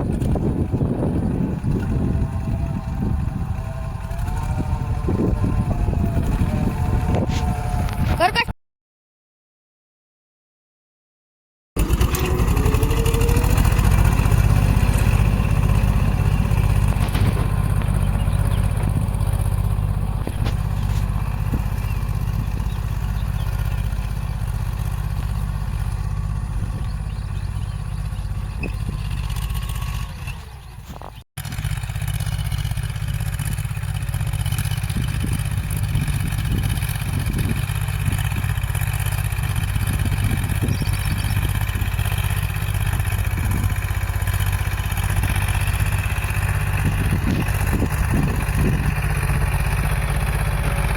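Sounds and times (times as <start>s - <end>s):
tractor diesel engine clattering: 0.0s - 8.4s, 11.8s - 50.9s.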